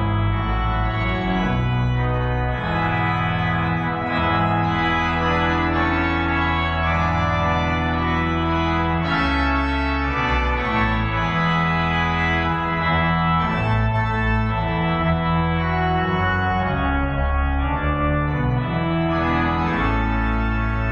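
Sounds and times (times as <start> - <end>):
organ chords: 0.0 - 20.9.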